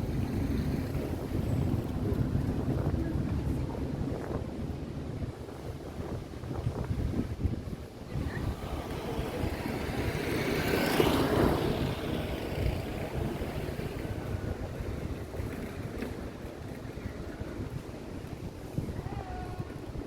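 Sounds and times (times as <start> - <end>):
wind buffeting microphone: 0.0 - 20.0
vehicle passing: 8.1 - 15.9.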